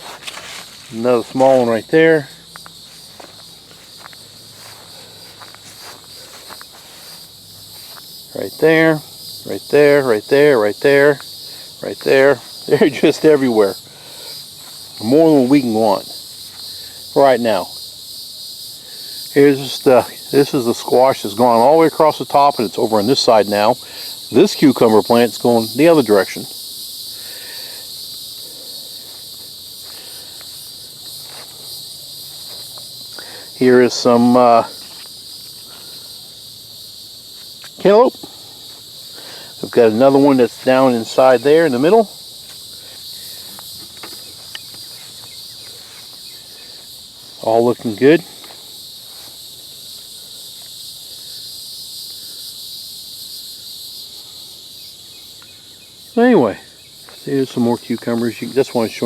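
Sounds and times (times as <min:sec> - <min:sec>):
faint rustles and ticks: 0:00.0 - 0:09.4, 0:37.2 - 0:50.8
insects chorus: 0:00.0 - 0:59.0.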